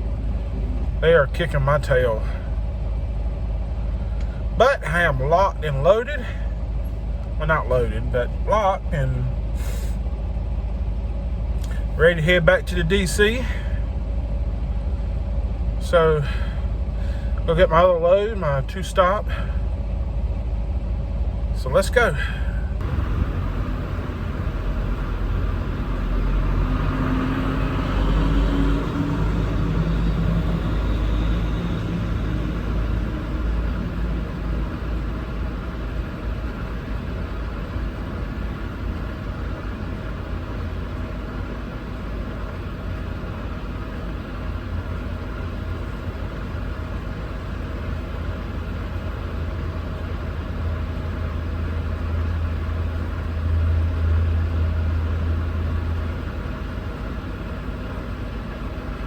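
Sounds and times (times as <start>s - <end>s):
diesel truck engine pulling away: 0.0s - 59.0s.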